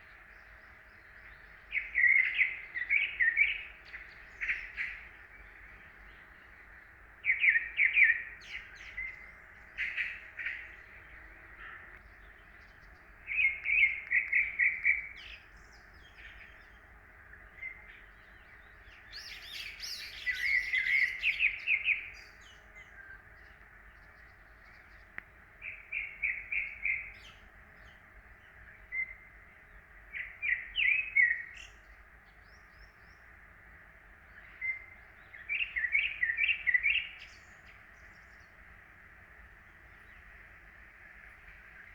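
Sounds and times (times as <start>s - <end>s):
songbirds chirping: 0.0s - 41.9s.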